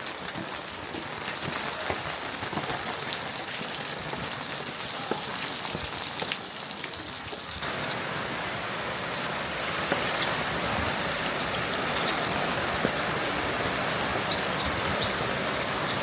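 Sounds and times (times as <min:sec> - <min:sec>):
close raindrop hits: 0:00.0 - 0:08.0
steady rain falling: 0:00.0 - 0:16.0.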